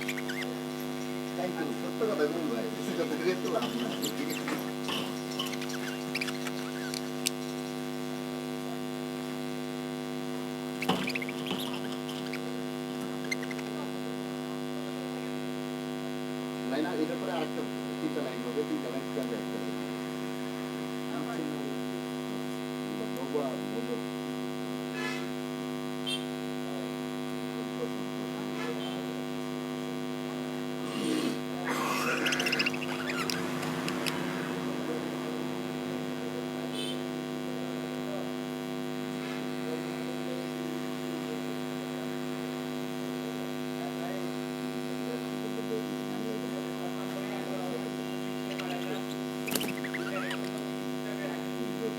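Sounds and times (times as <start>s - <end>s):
budgies chirping: 0.0s - 7.9s, 10.8s - 13.8s, 30.9s - 36.4s, 48.2s - 50.6s
electrical mains hum: 0.0s - 51.9s
faint short chirps: 31.7s - 35.6s.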